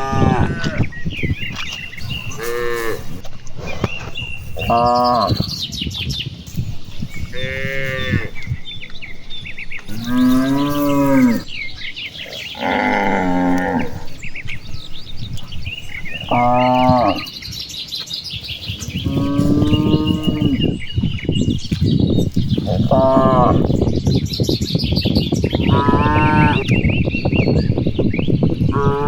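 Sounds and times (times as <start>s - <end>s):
cows mooing: 0.0s - 0.9s, 2.0s - 3.2s, 4.5s - 5.5s, 7.3s - 8.5s, 9.8s - 14.3s, 16.0s - 17.3s, 19.0s - 20.8s, 22.7s - 23.7s, 25.6s - 26.7s, 28.6s - 29.0s
faint birds chirping: 0.0s - 29.0s.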